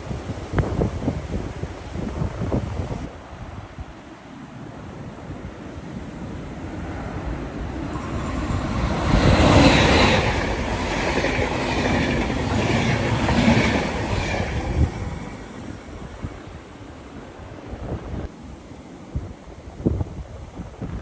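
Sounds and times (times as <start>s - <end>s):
train wheels on rails: 7.7s - 16.8s.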